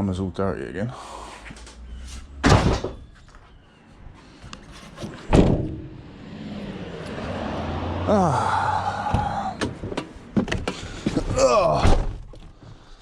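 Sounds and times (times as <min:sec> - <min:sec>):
heavy thuds: 0:05.0 - 0:06.0
vehicle engine revving up: 0:06.0 - 0:09.6.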